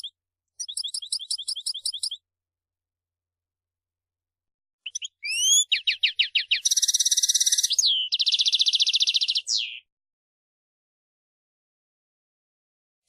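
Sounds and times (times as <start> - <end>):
goldfinch singing: 0.0 - 2.2, 4.8 - 9.9.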